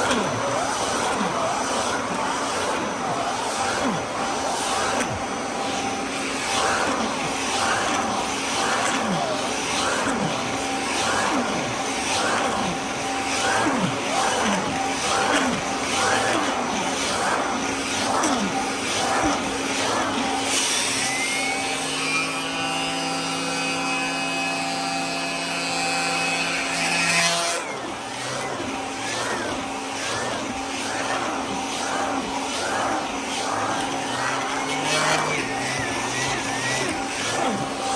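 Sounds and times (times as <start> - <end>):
vacuum cleaner running: 0.0 - 37.9.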